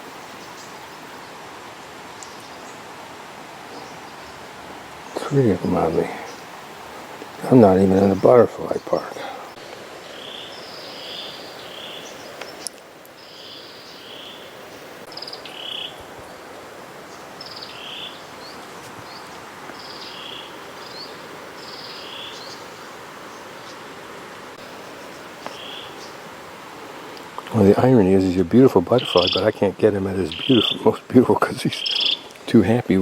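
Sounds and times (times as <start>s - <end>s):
steady background hiss: 0.0s - 33.0s
high chirping animal calls: 7.2s - 14.5s, 15.1s - 16.0s, 17.1s - 23.5s, 25.0s - 26.2s, 28.9s - 29.6s, 30.3s - 30.9s, 31.7s - 32.3s.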